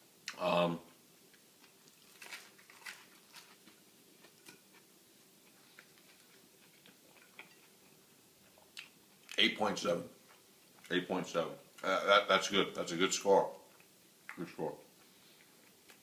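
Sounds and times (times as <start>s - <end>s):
chewing sandwich: 1.2s - 9.4s.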